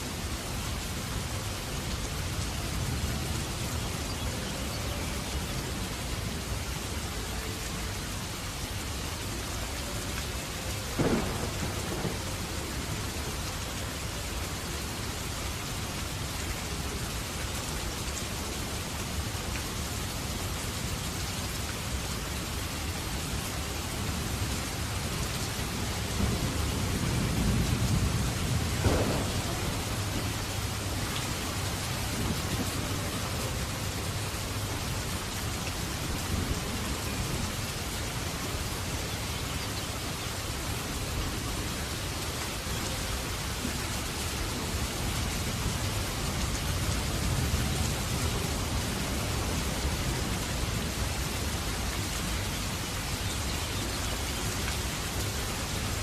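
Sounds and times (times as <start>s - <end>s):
steady rain: 0.0s - 56.0s
thunder rumbling and cracking: 11.0s - 12.8s, 26.0s - 33.4s.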